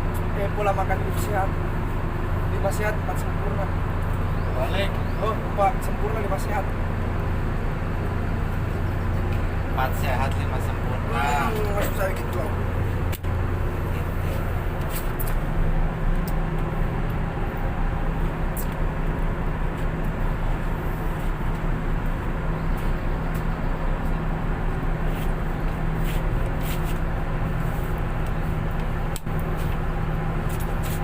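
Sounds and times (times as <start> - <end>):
diesel engine drone: 0.0 - 31.0.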